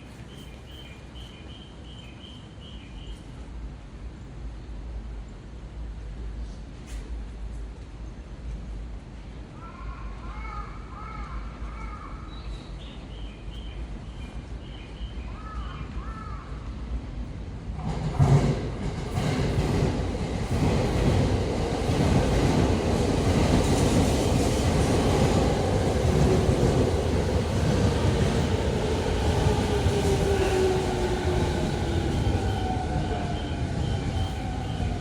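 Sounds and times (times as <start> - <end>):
train braking: 21.9 - 35.0.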